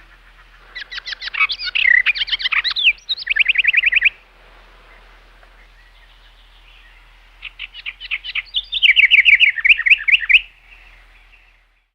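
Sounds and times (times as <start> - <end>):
birds chirping: 0.0 - 11.9
fast high chirps: 0.8 - 4.2, 7.4 - 10.5.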